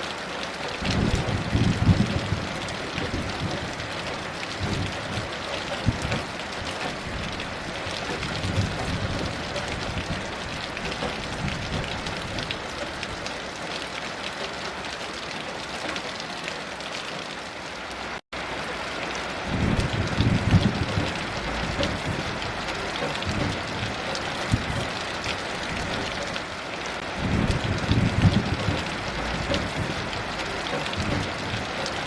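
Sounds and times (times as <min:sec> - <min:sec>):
heavy rain falling: 0:00.0 - 0:32.0
distant thunder rumbling: 0:00.8 - 0:13.4, 0:19.4 - 0:26.4, 0:27.0 - 0:32.0.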